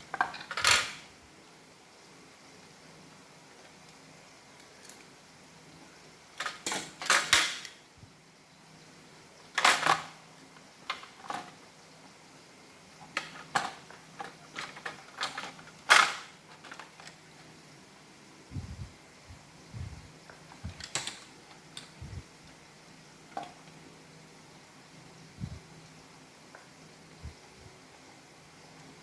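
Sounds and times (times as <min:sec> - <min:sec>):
plastic parts clicking and clattering: 0:00.1 - 0:01.0, 0:06.4 - 0:07.8, 0:09.6 - 0:10.2, 0:10.8 - 0:11.6, 0:13.0 - 0:17.2, 0:20.5 - 0:22.0.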